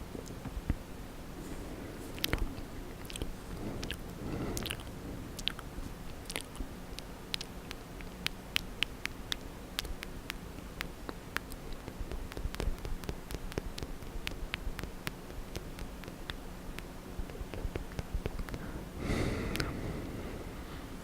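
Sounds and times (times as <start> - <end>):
wet mouth clicks and smacks: 2.1 - 18.7.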